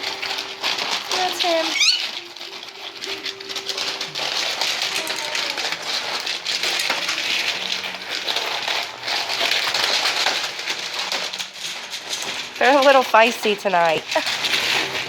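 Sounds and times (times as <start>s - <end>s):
pellet bedding crunching and rattling: 0.0s - 15.0s.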